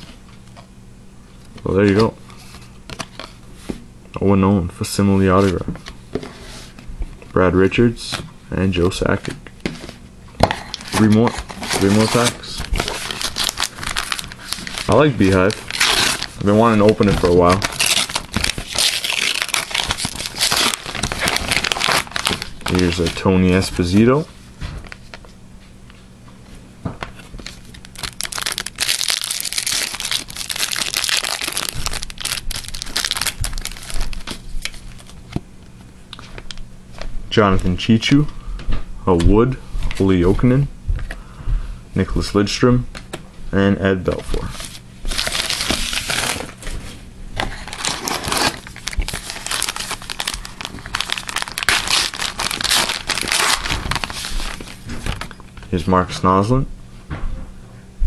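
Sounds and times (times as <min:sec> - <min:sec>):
foil wrapper tearing and crinkling: 0:10.7 - 0:24.0, 0:27.4 - 0:35.2, 0:44.6 - 0:46.6, 0:47.4 - 0:55.3.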